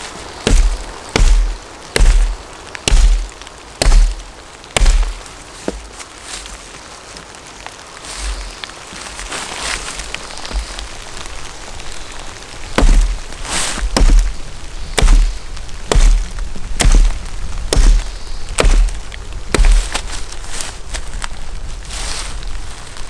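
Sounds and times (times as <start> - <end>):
sharp chopping strikes with thuds: 0.4 - 6.0, 10.3 - 20.7.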